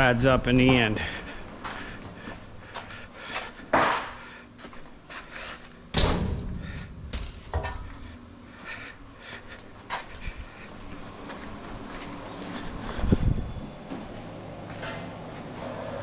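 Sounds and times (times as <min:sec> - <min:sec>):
loud bang: 0:06.0 - 0:08.2
scrap metal clanking: 0:06.0 - 0:08.2.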